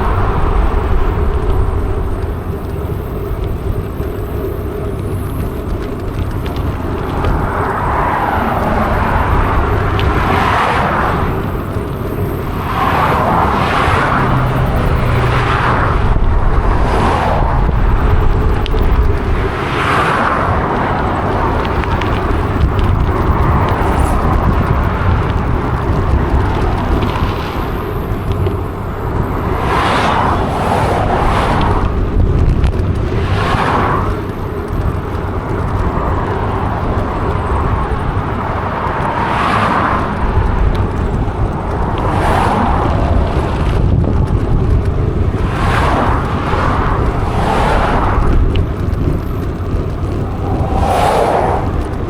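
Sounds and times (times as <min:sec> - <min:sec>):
whoosh: 0:00.0 - 0:02.6, 0:50.0 - 0:52.0
bicycle tyre noise: 0:00.0 - 0:52.0
wind rumbling on microphone: 0:00.0 - 0:52.0.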